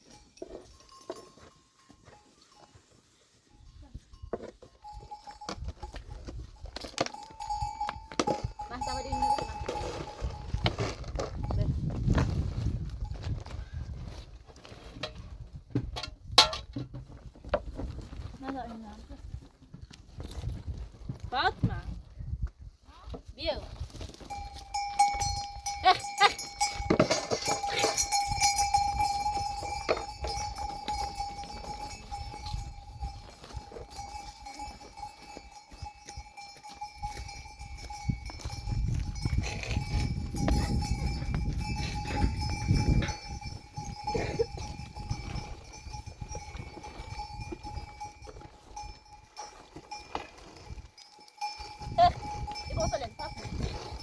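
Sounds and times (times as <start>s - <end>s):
livestock neck bells ringing: 0.0s - 11.9s, 24.0s - 54.0s.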